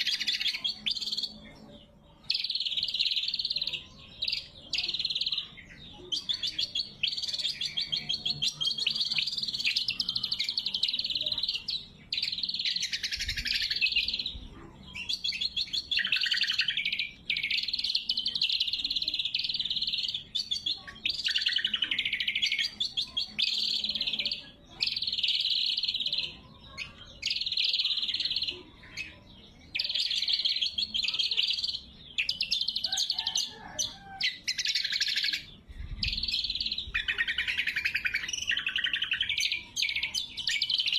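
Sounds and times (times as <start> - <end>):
bird singing high-pitched song: 0.0 - 40.9.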